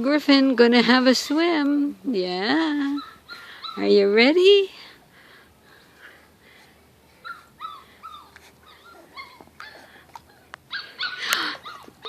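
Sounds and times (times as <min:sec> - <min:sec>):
puppy whimpering and yipping: 0:02.8 - 0:04.0, 0:07.2 - 0:12.0.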